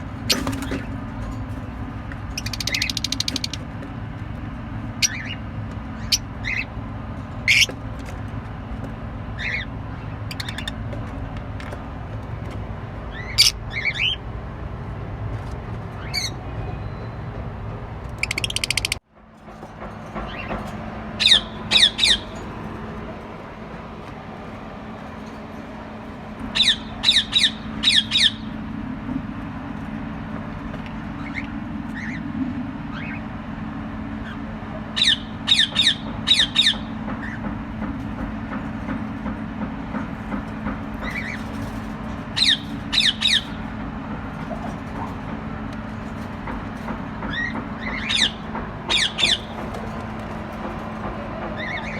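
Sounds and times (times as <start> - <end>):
lovebirds squawking: 2.2 - 3.7, 4.9 - 6.8, 7.4 - 7.8, 9.3 - 10.8, 13.1 - 14.3, 21.2 - 22.6, 26.4 - 28.7, 34.2 - 37.4, 40.8 - 43.8, 47.2 - 50.2, 51.5 - 51.9.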